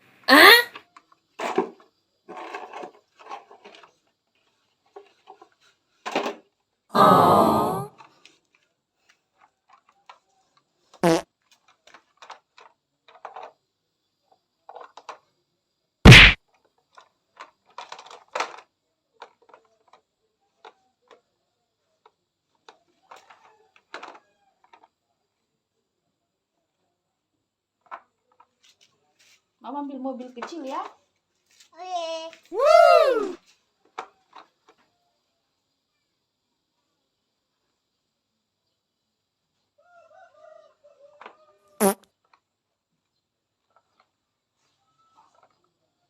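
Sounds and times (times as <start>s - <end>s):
plastic toy cars clicking: 0.8s - 6.6s, 8.2s - 10.8s, 11.4s - 13.6s, 14.3s - 15.4s, 16.5s - 25.0s, 27.8s - 29.3s, 33.4s - 34.9s, 45.2s - 45.8s.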